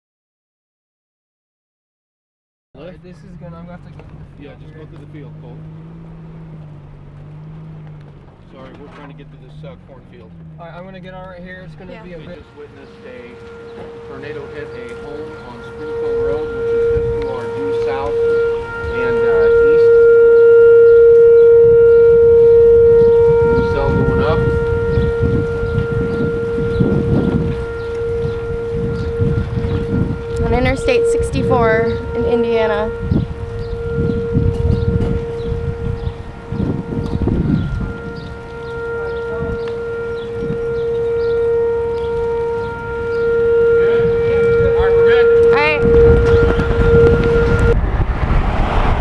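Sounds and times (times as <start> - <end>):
low rumbling noise: 2.8 - 49.0
warning siren steady tone: 10.8 - 49.0
quick rising siren chirps: 11.6 - 49.0.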